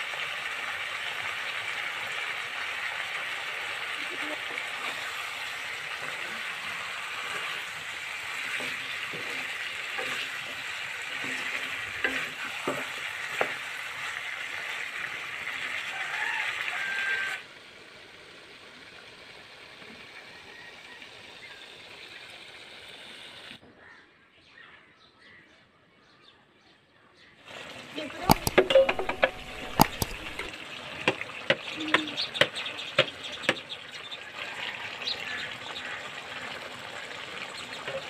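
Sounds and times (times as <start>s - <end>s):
vegetables sizzling in hot oil: 0.0s - 23.6s, 27.5s - 38.0s
wooden spoon knocking against pan: 28.3s - 30.5s.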